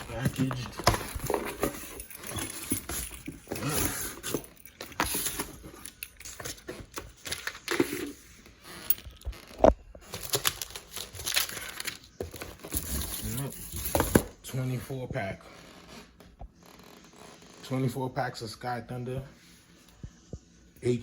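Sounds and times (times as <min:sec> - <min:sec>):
packaging rustling and crinkling: 0:00.0 - 0:14.3.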